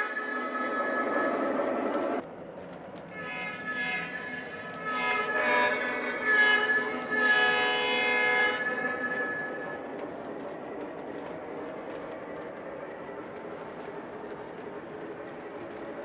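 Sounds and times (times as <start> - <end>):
model locomotive horn: 0.0 - 2.1, 3.1 - 9.8
model locomotive running sound: 0.0 - 16.0.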